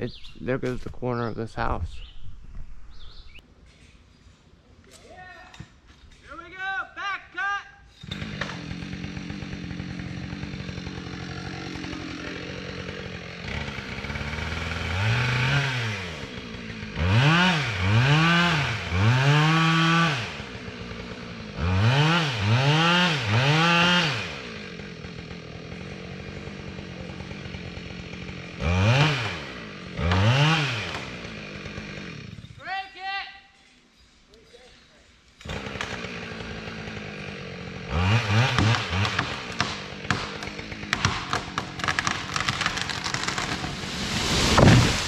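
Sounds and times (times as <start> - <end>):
chainsaw cutting trunk: 8.0 - 32.6, 35.4 - 45.0.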